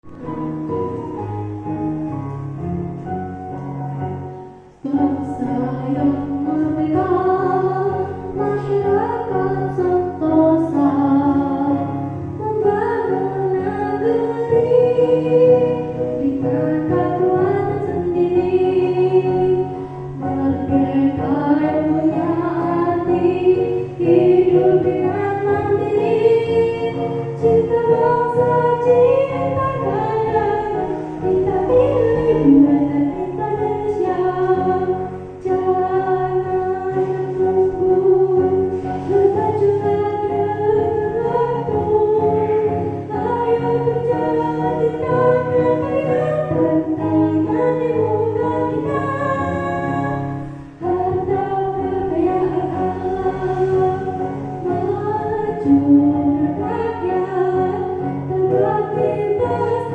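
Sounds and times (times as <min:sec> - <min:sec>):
musical accompaniment: 0:00.0 - 0:59.9
children singing: 0:20.3 - 0:50.2.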